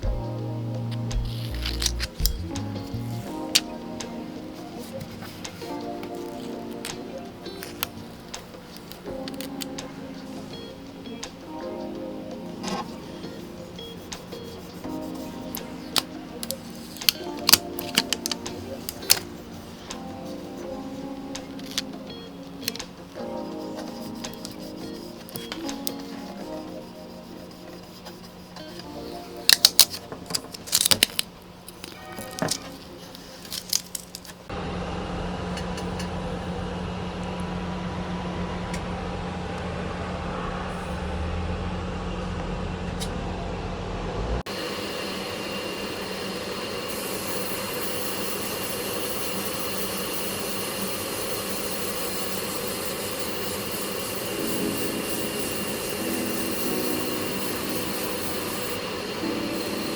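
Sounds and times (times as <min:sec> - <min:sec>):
paint spray hiss: 0:12.3 - 0:30.9, 0:44.5 - 0:59.9.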